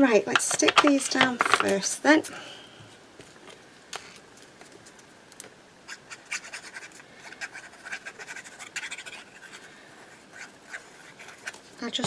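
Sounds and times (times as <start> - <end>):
paper scratching and rustling: 5.9 - 11.8.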